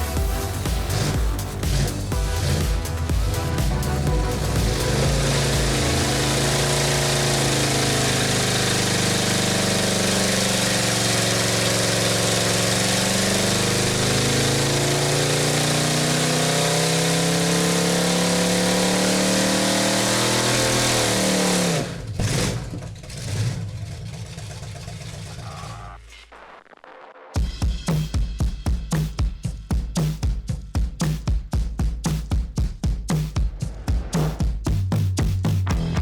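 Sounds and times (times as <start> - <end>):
car engine running: 0.0 - 26.5.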